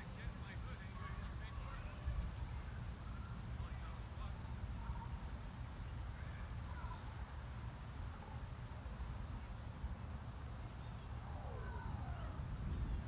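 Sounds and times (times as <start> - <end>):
low rumble of wind on microphone: 11.2 - 13.0.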